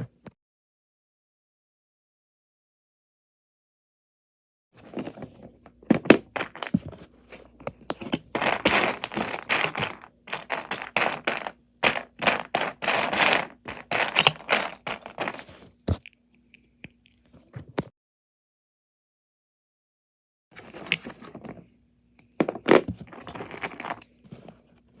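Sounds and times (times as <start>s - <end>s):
rattling and rustling: 4.8s - 15.8s.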